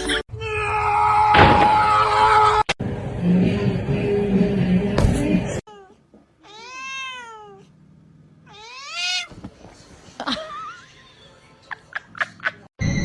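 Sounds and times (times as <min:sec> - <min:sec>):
cat meowing: 0:05.7 - 0:07.7, 0:08.5 - 0:09.3.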